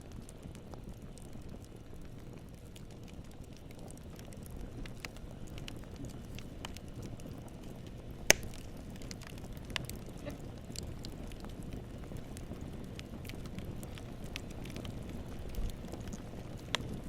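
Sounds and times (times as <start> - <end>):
campfire flames rumbling: 0.0 - 17.0
wood crackling and popping: 0.0 - 17.0.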